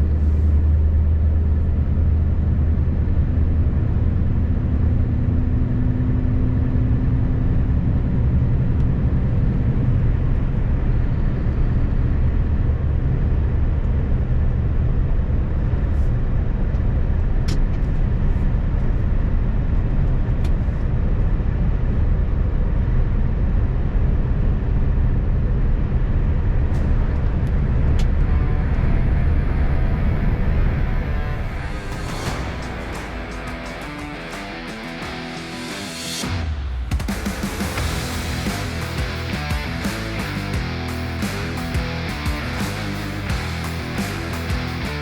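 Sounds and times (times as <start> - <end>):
road noise: 25.6 - 45.0.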